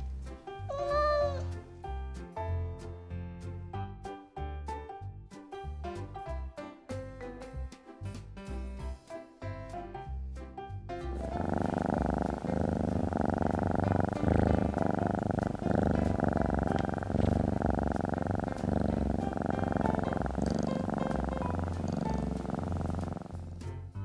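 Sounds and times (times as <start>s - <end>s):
cat purring: 11.2s - 24.0s.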